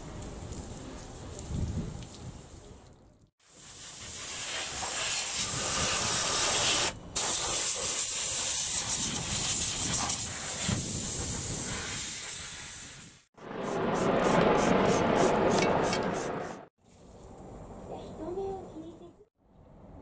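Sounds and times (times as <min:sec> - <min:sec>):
water spraying from wash gun: 0:03.5 - 0:13.0.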